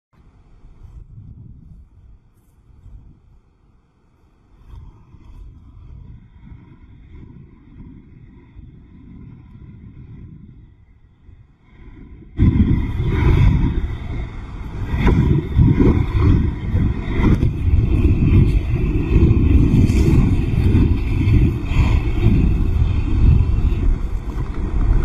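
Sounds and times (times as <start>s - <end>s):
wind buffeting microphone: 0.2s - 25.0s
heavy storm surf: 4.5s - 25.0s.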